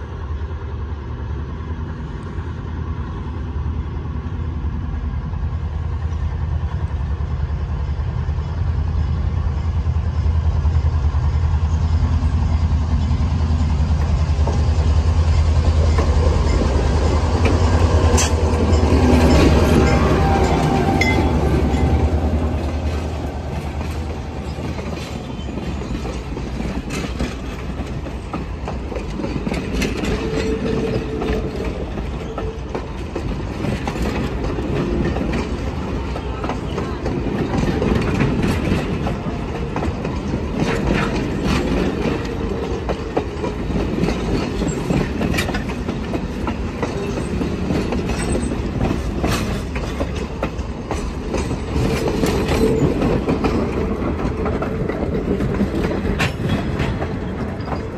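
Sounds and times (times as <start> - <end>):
diesel locomotive rumble: 0.0 - 57.9
wheels clicking over rail joints: 13.9 - 57.9.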